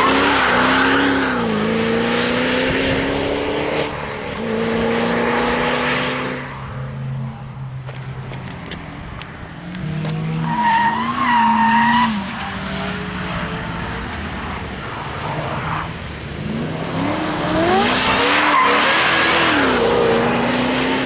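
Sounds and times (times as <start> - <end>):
car engine revving: 0.0 - 8.8, 9.6 - 21.0
tyre squeal: 10.1 - 13.8, 17.7 - 19.9.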